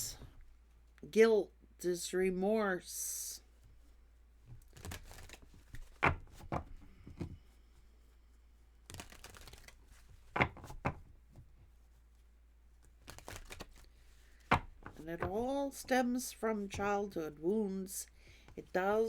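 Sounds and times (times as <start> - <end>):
cards shuffling: 4.5 - 7.4, 8.8 - 11.4, 12.8 - 16.0.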